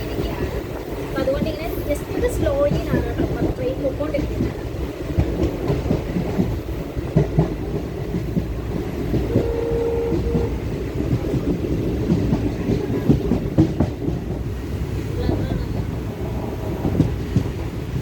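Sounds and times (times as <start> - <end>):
train wheels on rails: 0.0 - 18.0
brief steady tone: 9.3 - 10.5.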